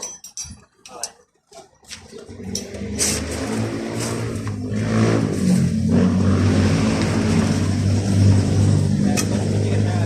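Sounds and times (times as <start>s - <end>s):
car engine revving: 2.2s - 10.0s.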